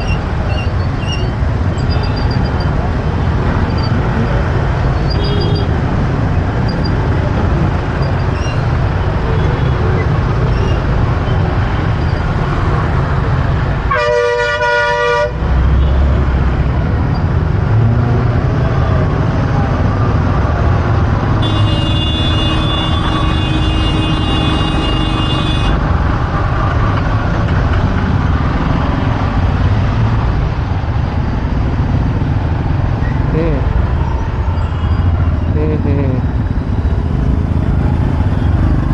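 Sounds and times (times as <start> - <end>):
rumble of traffic engines: 0.0 - 38.9
higher vehicle horn held: 13.9 - 15.4, 21.4 - 25.8
vehicle horn: 13.9 - 15.4, 21.4 - 25.8.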